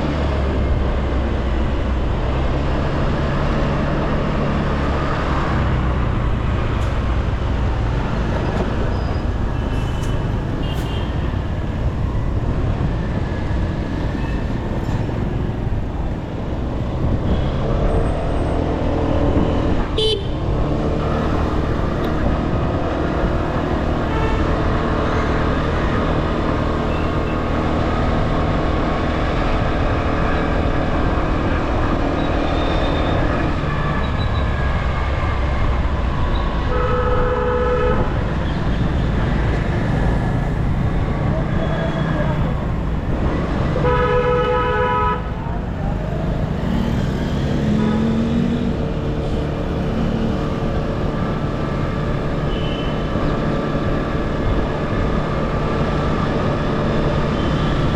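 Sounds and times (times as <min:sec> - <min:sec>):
wind and road noise: 0:00.0 - 0:57.9
vehicle horns: 0:09.6 - 0:11.4, 0:19.8 - 0:21.4, 0:24.0 - 0:24.6, 0:36.6 - 0:38.2, 0:43.7 - 0:45.4, 0:47.6 - 0:48.5, 0:52.4 - 0:53.1.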